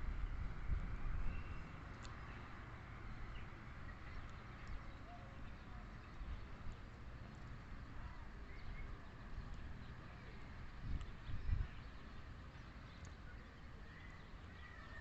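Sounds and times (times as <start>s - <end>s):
low wind rumble: 0.0s - 15.0s
faint ticks: 1.9s - 2.4s, 12.9s - 13.2s.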